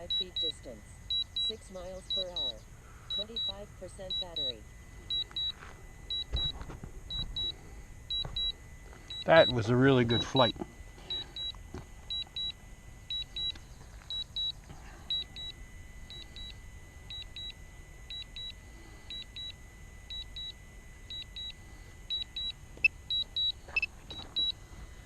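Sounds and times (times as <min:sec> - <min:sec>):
high-pitched double beeps: 0:00.0 - 0:10.5.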